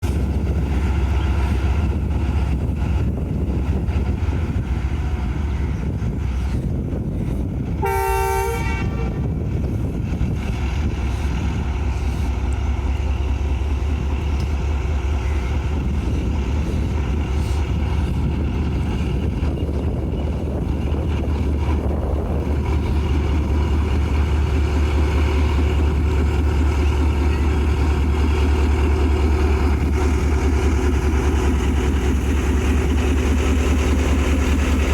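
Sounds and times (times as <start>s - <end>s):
diesel locomotive engine rumbling: 0.0s - 34.9s
locomotive horn blast: 7.8s - 9.3s.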